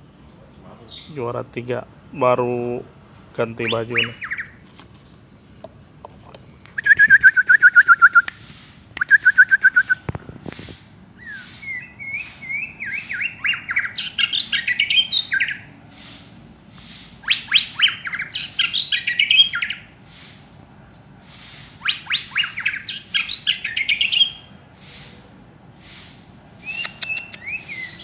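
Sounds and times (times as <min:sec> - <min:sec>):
bird singing whistled notes: 0:03.6 - 0:05.2, 0:06.8 - 0:08.4, 0:09.0 - 0:10.0, 0:11.2 - 0:16.2, 0:17.2 - 0:19.9, 0:21.8 - 0:24.5, 0:26.6 - 0:28.0.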